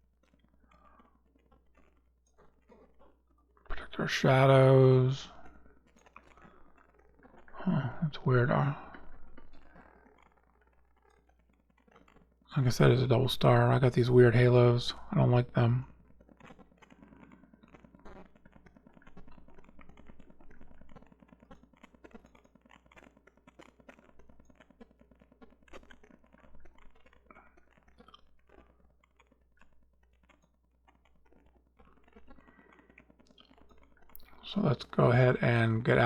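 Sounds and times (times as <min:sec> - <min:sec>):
computer mouse and keyboard clicking: 0:15.8 - 0:36.0.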